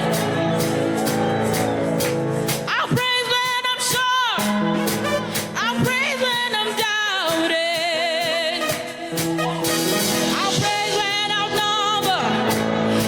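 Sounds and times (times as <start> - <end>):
band accompaniment: 0.0 - 13.0
solo voice singing with vibrato: 10.2 - 13.0.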